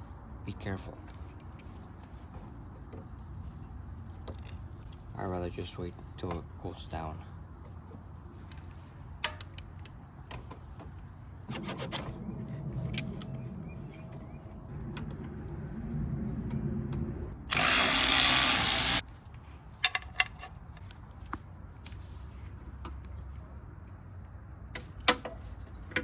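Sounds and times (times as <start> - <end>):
tools and parts clicking: 8.5 - 10.6, 19.8 - 21.0
power tool motor running: 17.5 - 19.0.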